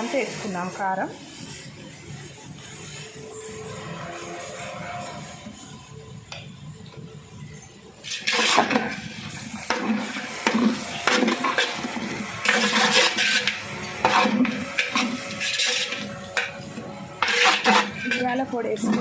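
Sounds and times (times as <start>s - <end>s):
metal ladle scraping metal pot: 2.6s - 5.8s, 8.0s - 19.0s.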